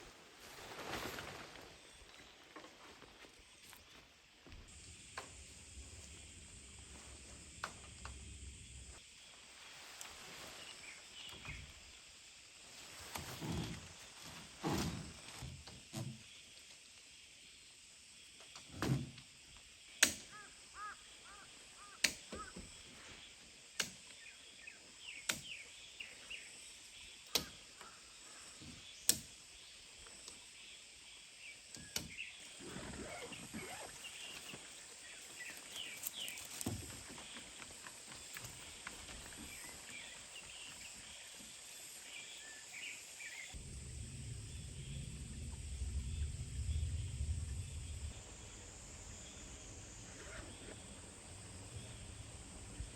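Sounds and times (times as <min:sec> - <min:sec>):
small birds chirping: 0:24.1 - 0:50.9
low rumble: 0:43.6 - 0:50.1.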